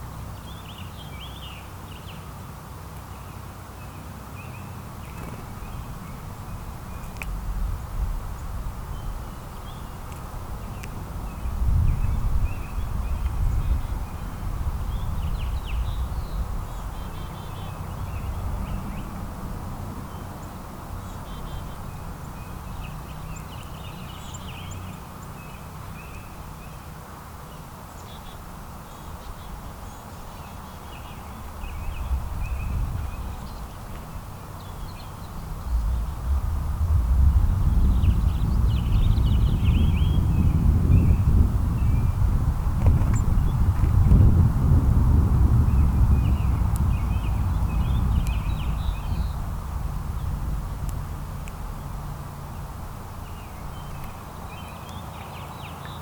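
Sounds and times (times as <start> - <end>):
songbirds chirping: 0.0 - 44.6, 45.5 - 56.0
low rumble: 35.2 - 54.0.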